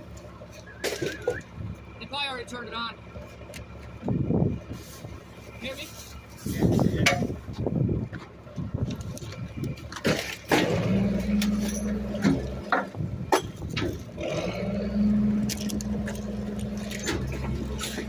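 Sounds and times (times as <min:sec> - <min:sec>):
garbage truck engine revving: 0:00.0 - 0:02.0, 0:09.2 - 0:18.0
metal clanks and knocks: 0:09.2 - 0:14.3, 0:15.4 - 0:18.0.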